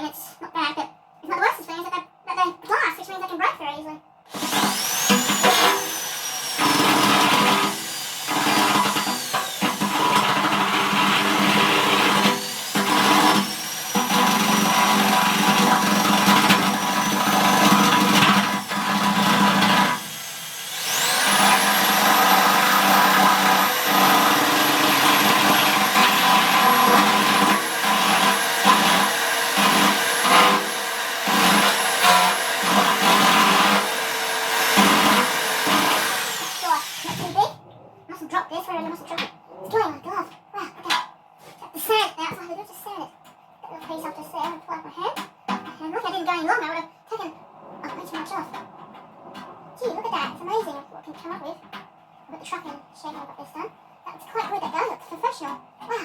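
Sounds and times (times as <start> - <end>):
electric drill whining: 4.3 - 37.5.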